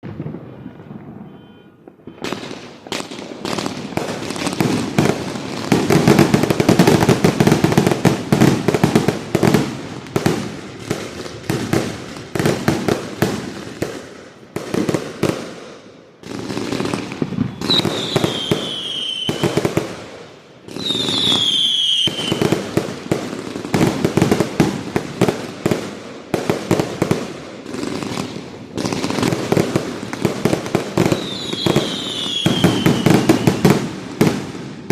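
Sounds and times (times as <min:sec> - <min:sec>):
firework barrage crackling: 0:00.0 - 0:34.9
high falling whistles: 0:17.5 - 0:19.5, 0:20.8 - 0:22.4.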